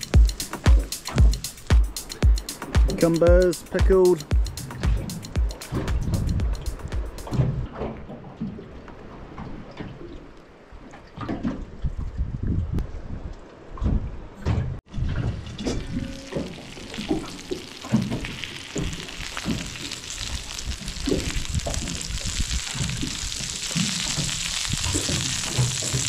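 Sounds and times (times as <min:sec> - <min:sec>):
fish sizzling on griddle: 0:16.6 - 0:26.0.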